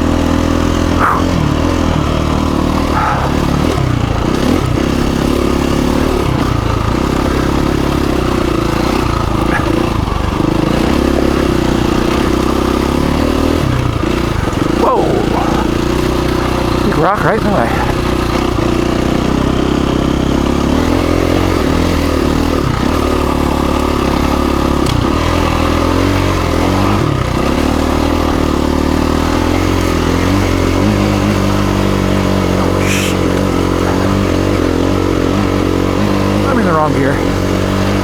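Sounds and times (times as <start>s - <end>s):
dirt bike engine running: 0.0s - 38.0s.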